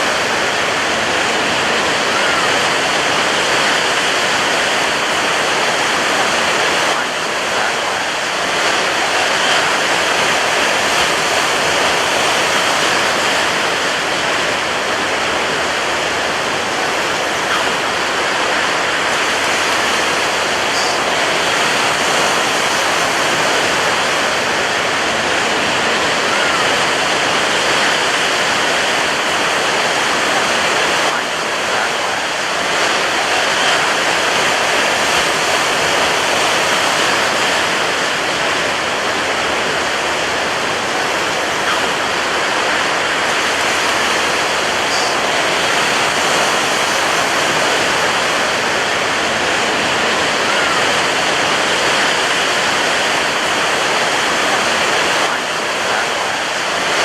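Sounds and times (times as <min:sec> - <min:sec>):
ocean surf roar: 0:00.0 - 0:57.0.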